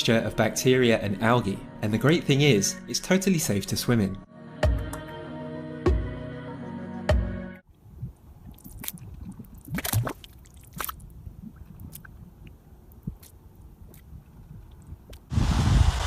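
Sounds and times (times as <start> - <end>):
wet pops and drips: 8.5 - 15.3
loud rushing hiss: 15.3 - 16.0.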